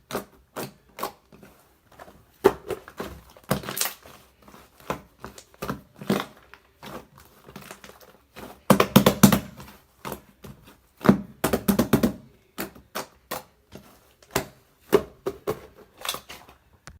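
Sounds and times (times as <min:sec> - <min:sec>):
slime squished by hand: 0:02.6 - 0:07.9.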